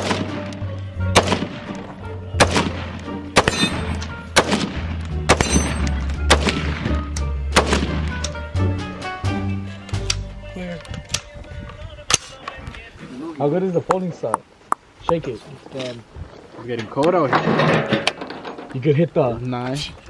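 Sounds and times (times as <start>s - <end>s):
gunshots: 0.0s - 8.2s
music: 0.0s - 12.8s.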